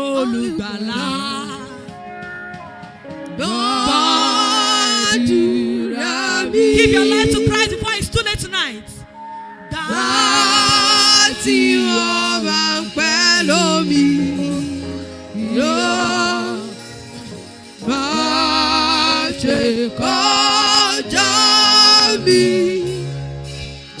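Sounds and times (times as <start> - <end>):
person singing with vibrato: 0.0 - 23.5
sustained bass accompaniment: 12.8 - 24.0.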